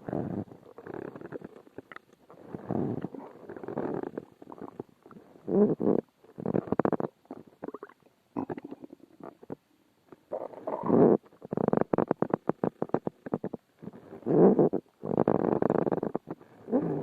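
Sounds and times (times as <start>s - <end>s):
stomach growling: 0.0s - 17.0s.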